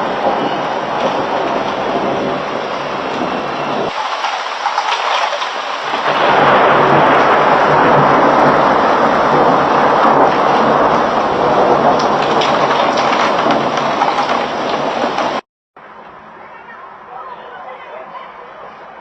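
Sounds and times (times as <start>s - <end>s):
heavy rain pouring: 0.0s - 15.4s.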